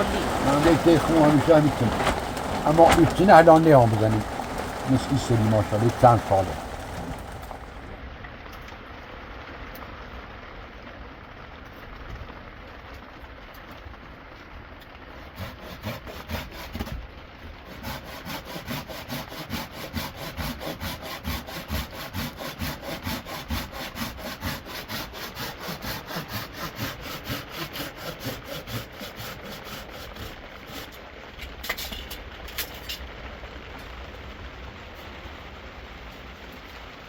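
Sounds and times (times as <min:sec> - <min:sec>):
hand saw cutting wood: 0:00.0 - 0:07.9, 0:15.2 - 0:17.0, 0:17.6 - 0:31.1.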